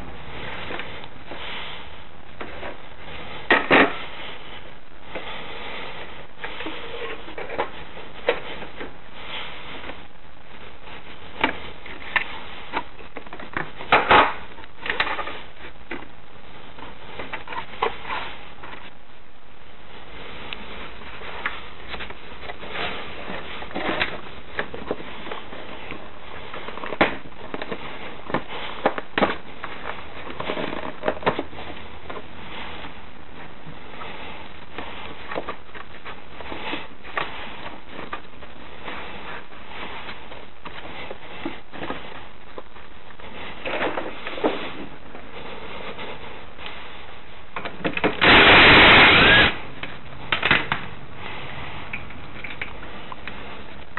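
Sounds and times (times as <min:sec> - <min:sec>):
loud noise burst: 0:48.1 - 0:49.8.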